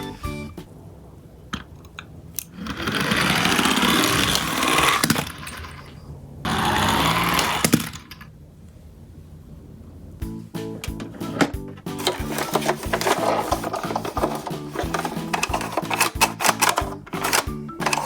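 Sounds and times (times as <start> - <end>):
toy cars rolling on track: 1.5 - 8.4, 11.1 - 18.0.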